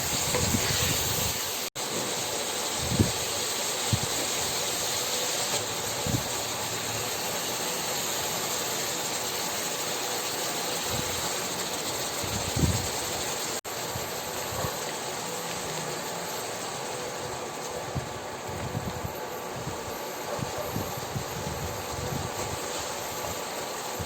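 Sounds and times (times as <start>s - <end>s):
chicken frying in oil: 0.0s - 24.0s.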